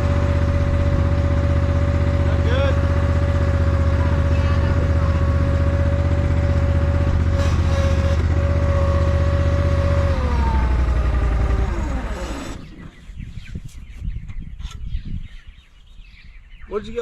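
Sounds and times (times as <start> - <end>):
garden tractor engine winding down: 0.0 - 13.2.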